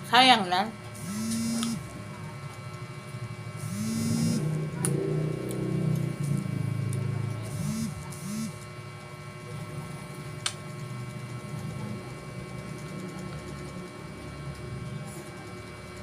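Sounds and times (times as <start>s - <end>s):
low mechanical hum: 0.0s - 16.0s
sharp click: 1.2s - 1.8s.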